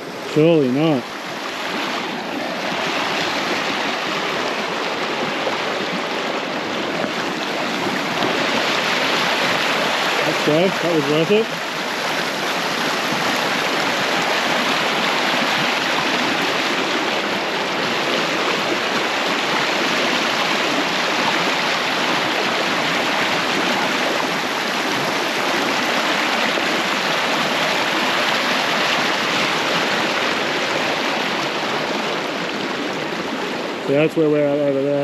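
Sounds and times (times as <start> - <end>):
river water rushing: 0.0 - 35.0.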